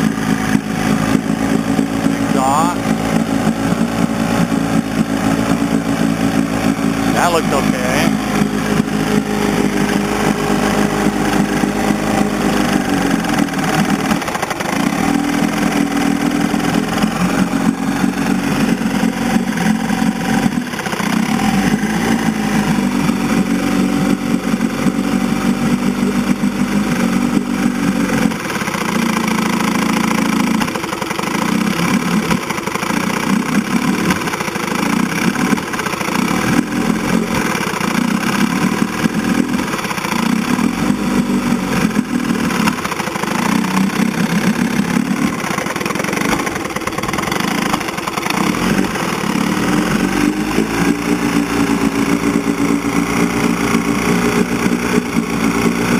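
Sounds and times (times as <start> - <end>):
outboard motor running unevenly: 0.0 - 55.9.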